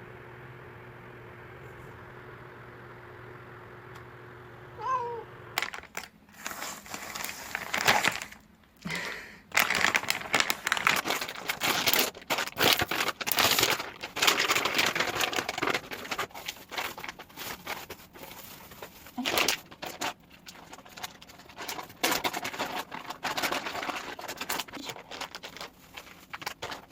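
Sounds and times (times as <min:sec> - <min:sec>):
crinkling and rustling: 0:05.6 - 0:26.9.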